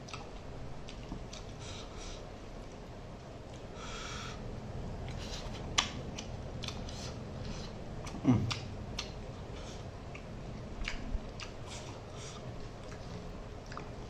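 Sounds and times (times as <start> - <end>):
wet chewing and smacking: 0.0 - 1.6, 5.0 - 14.0
low throat sound: 8.1 - 8.7.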